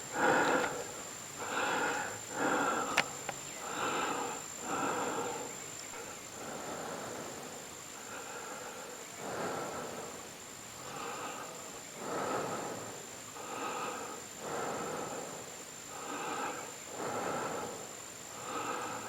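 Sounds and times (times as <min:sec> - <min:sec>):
person breathing hard: 0:00.0 - 0:19.0.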